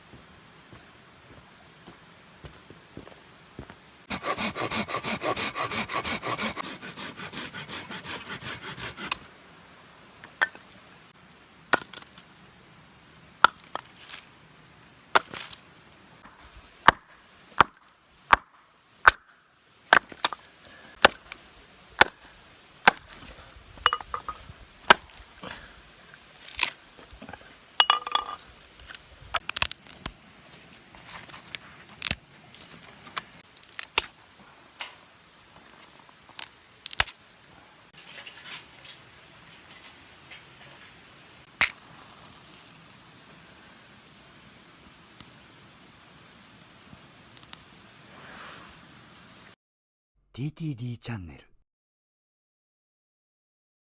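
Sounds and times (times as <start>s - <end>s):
wood being sawn: 4.1s - 9.3s
firewood being chopped: 11.7s - 12.1s, 15.1s - 15.6s, 16.2s - 19.3s, 19.9s - 21.4s, 22.0s - 25.2s.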